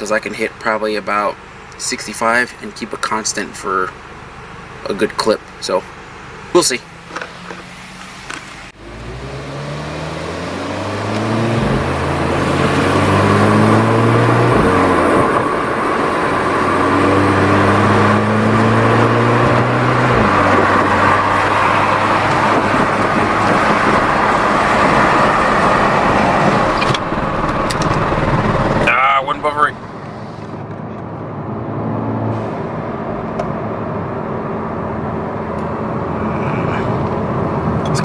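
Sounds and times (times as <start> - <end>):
road noise: 0.0 - 38.0
car exhaust accelerating: 5.9 - 38.0
wind buffeting: 10.8 - 30.0.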